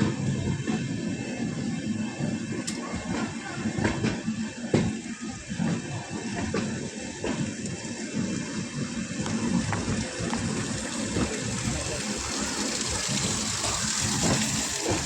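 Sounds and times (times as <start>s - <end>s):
train coach rushing noise: 9.4s - 15.0s.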